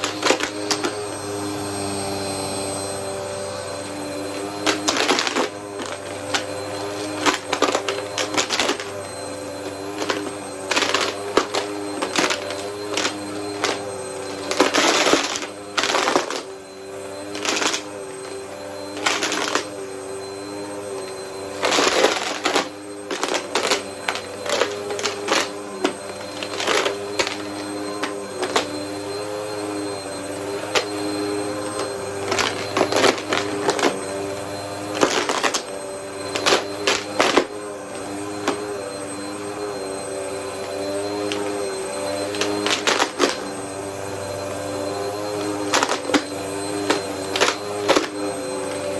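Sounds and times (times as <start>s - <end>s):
vacuum cleaner motor hum: 0.0s - 48.9s
coins clattering into vacuum: 4.2s - 9.0s, 9.6s - 16.5s, 21.5s - 29.0s.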